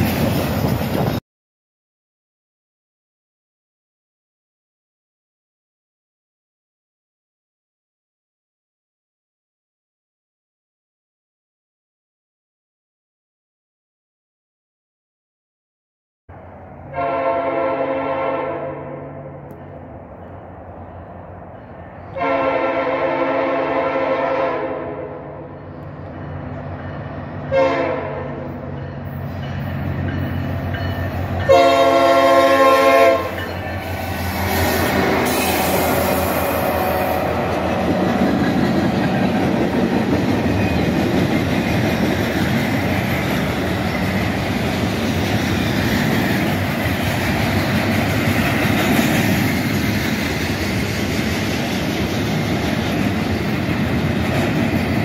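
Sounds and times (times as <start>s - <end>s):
train wheels rumbling on track: 0.0s - 1.2s, 16.3s - 55.0s
locomotive horn blasts: 16.9s - 19.4s, 22.1s - 25.5s, 27.4s - 28.7s, 31.4s - 38.2s.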